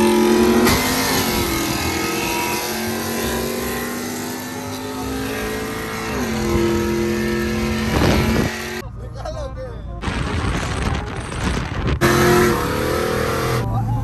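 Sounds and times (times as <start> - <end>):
truck engine at high revs: 0.0 - 8.8, 12.0 - 14.0.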